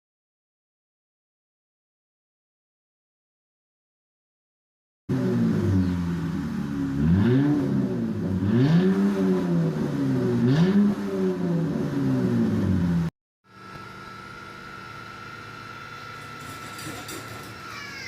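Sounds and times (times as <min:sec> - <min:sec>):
car engine revving: 0:05.1 - 0:13.1
engine idling: 0:13.5 - 0:18.0.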